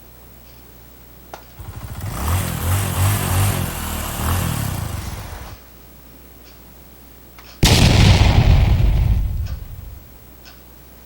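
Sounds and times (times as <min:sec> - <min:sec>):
engine starting and chugging: 0:01.6 - 0:05.6
sudden loud blast: 0:07.6 - 0:10.1.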